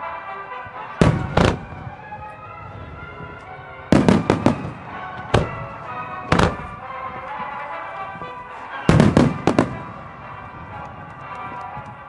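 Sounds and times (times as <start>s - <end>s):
music: 0.0s - 12.0s
firework shells bursting: 3.9s - 6.8s.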